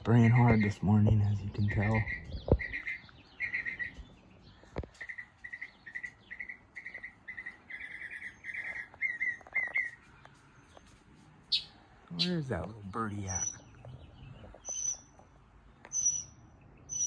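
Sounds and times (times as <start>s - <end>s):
songbird chirping: 0.0s - 17.0s.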